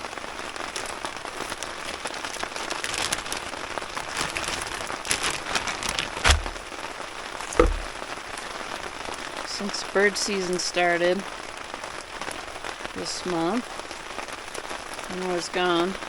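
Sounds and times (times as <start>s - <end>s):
rain pattering: 0.0s - 7.8s, 9.0s - 16.0s
dull thumps: 6.2s - 6.6s, 7.5s - 8.0s.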